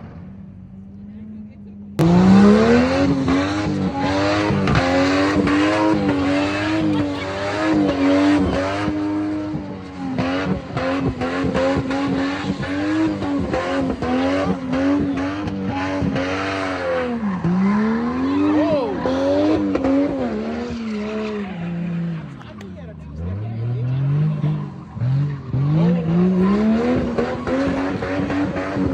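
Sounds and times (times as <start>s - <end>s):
tyres squealing: 2.0s - 21.4s
car engine revving high: 2.0s - 28.9s.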